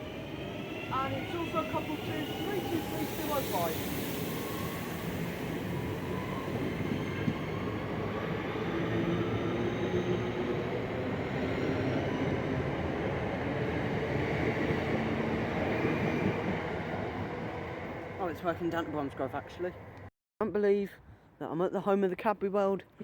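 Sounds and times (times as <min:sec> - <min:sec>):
electric train motors whining: 0:00.0 - 0:09.0
train rumble: 0:00.0 - 0:20.1.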